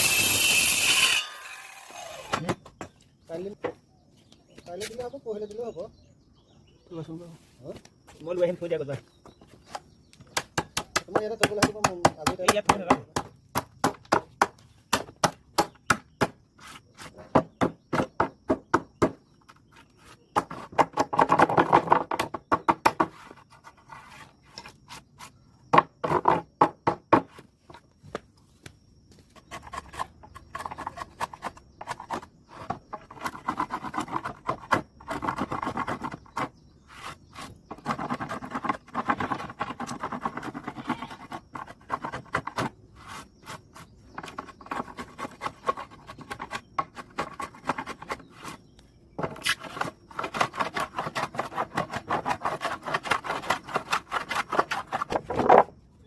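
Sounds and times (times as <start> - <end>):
scraping and rubbing on wood: 9.3 - 27.8, 29.2 - 55.8
sharp taps on wood: 9.7 - 16.4.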